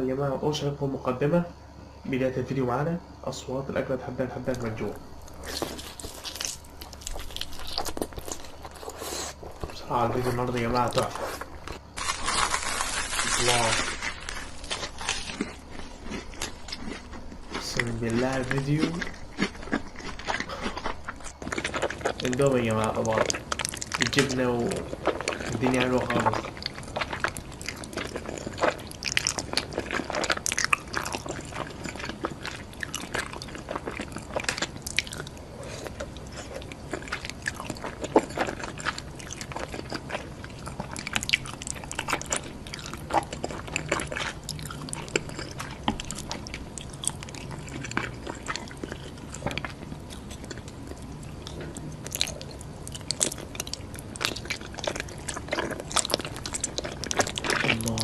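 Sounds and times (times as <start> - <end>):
crunching and chewing noodles: 4.4 - 58.0
sharp crackles: 5.2 - 17.0.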